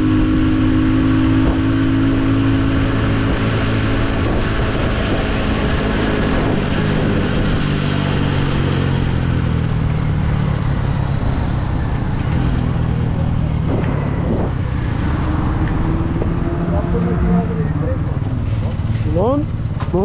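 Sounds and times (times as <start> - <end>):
wind on microphone: 0.0 - 18.9
motorcycle engine running: 0.0 - 20.0.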